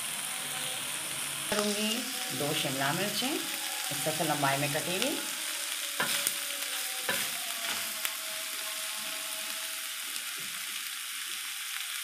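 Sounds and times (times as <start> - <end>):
food sizzling in a pan: 0.0 - 12.0
spatula scraping and knocking pan: 6.0 - 6.3, 7.1 - 7.8.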